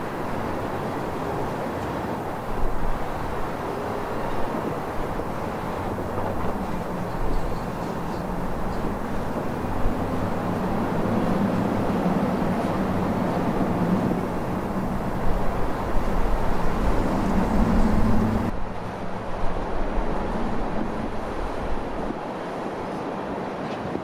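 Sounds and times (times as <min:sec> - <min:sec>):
diesel locomotive engine drone: 0:00.0 - 0:22.7
freight train rumbling: 0:00.0 - 0:23.9.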